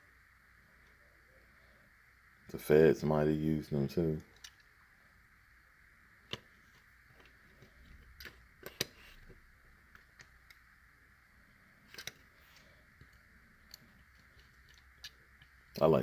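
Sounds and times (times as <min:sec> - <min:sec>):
faint steady hiss: 0:00.0 - 0:16.0
toy cars clicking: 0:11.9 - 0:15.6.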